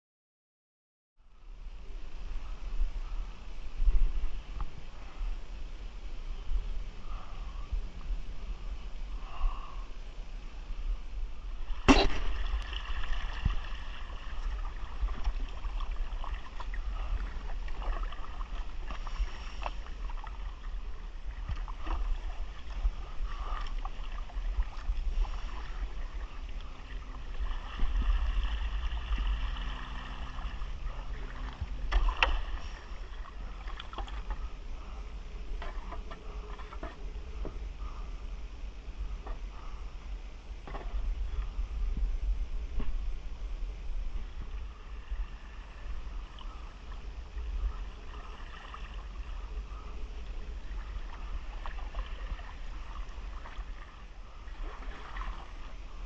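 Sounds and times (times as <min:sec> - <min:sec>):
low rumble: 0:01.2 - 0:56.0
paddle splashing water: 0:02.0 - 0:56.0
sharp knock: 0:11.9 - 0:12.3.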